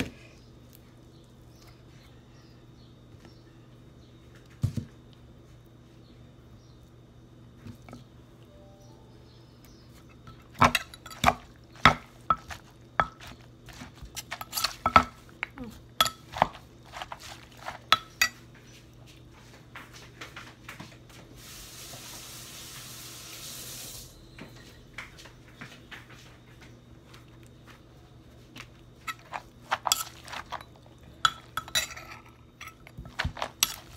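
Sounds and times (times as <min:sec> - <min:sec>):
metal spoon scraping in mortar: 0:10.2 - 0:15.2, 0:29.0 - 0:33.9.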